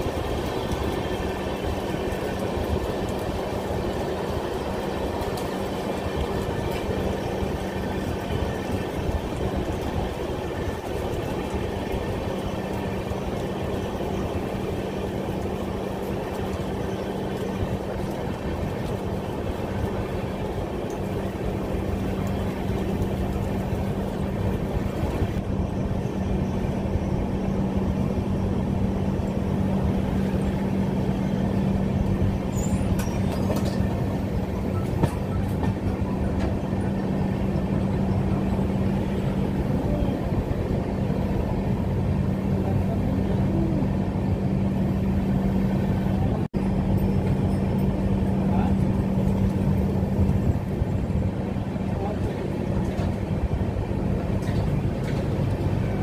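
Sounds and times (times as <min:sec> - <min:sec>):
constant low hum: 0:00.0 - 0:56.0
train rumbling and rattling on rails: 0:00.0 - 0:56.0.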